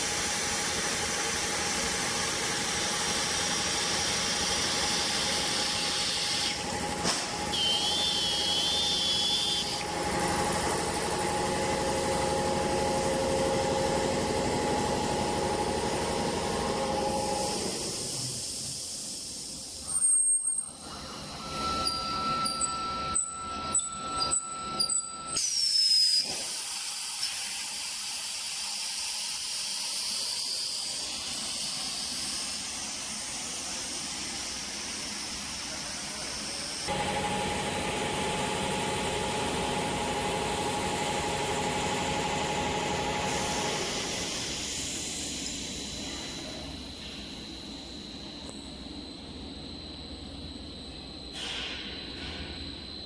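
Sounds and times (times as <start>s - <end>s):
short high beeps: 21.4s - 25.4s
machinery hiss and hum: 25.5s - 53.0s.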